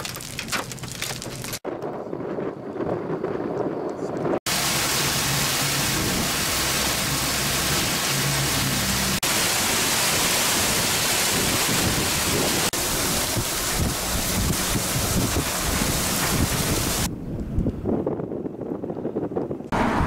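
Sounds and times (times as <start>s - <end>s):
heavy rain and hail on pavement: 0.0s - 1.6s, 4.5s - 17.1s
low hum: 2.0s - 10.7s.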